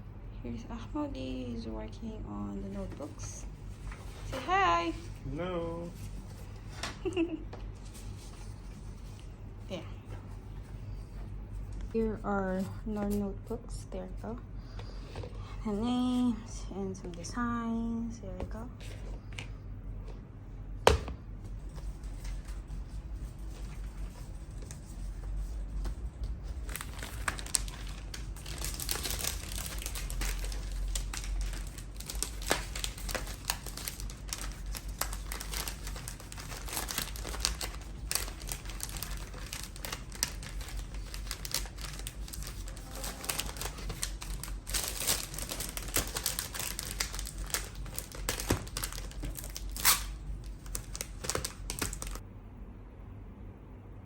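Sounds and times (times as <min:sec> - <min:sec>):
packaging crinkling and rustling: 0:21.6 - 0:52.2.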